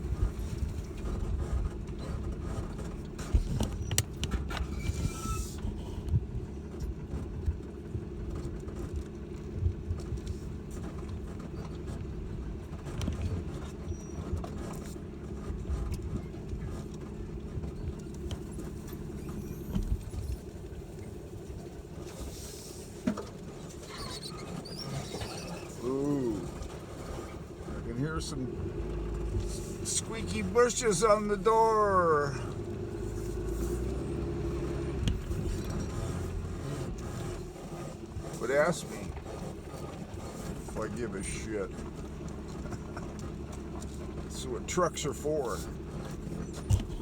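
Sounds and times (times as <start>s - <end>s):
truck engine and road hum: 0.0s - 47.0s
body knocks and rattles: 45.8s - 47.0s.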